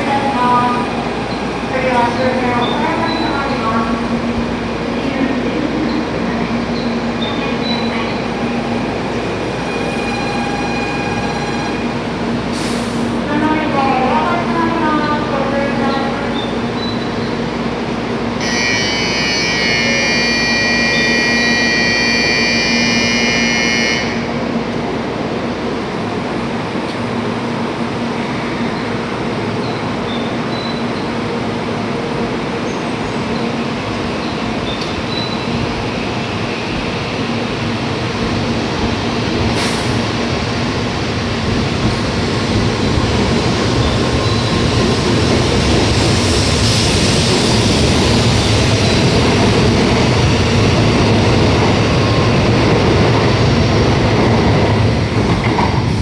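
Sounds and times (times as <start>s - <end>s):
train low hum: 0.0s - 56.0s.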